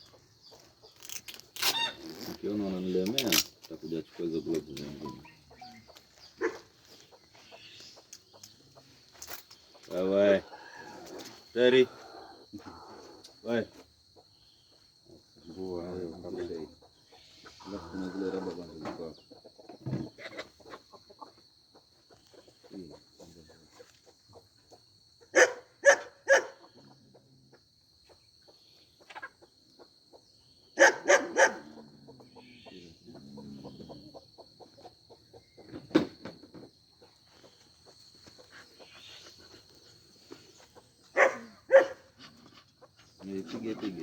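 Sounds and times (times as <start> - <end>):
dog barking: 6.4 - 6.7, 25.3 - 26.7, 30.8 - 31.9, 41.1 - 42.1.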